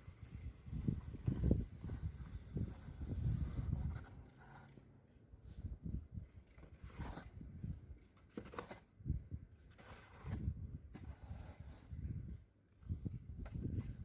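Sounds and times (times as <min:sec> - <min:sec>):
shovel scraping through snow: 0:00.1 - 0:04.7, 0:06.6 - 0:07.4, 0:08.4 - 0:08.9, 0:09.7 - 0:12.2.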